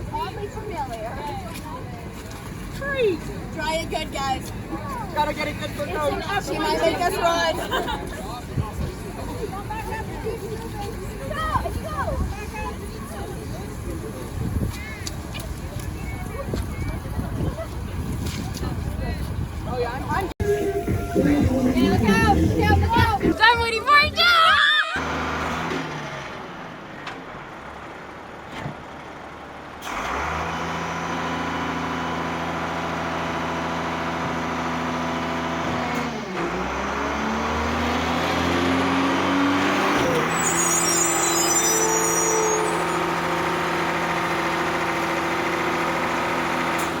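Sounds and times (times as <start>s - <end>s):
vehicle engine running: 19.3s - 47.0s.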